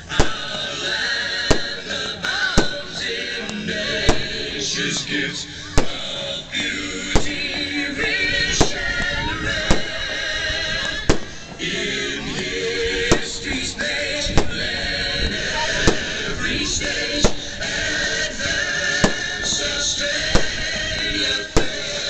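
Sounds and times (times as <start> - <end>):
loud music with singing: 0.0 - 22.0
small fireworks bangs: 0.1 - 0.7, 1.3 - 3.0, 5.8 - 6.2, 7.1 - 7.5, 8.5 - 10.1, 10.9 - 11.6, 14.2 - 14.7, 15.6 - 16.2, 17.2 - 17.5, 19.0 - 19.6, 20.2 - 22.0.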